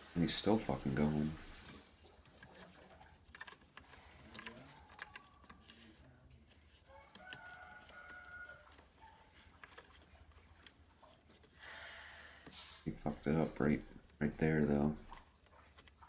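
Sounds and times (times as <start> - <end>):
rooster crowing faintly: 4.3 - 9.9.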